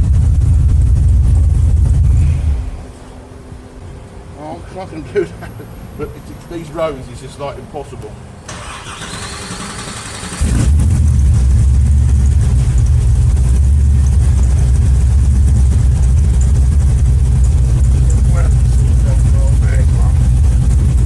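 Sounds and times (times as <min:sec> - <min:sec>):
engine idling loudly: 0:00.0 - 0:02.9, 0:08.6 - 0:21.0
starter motor whirring: 0:08.5 - 0:10.9.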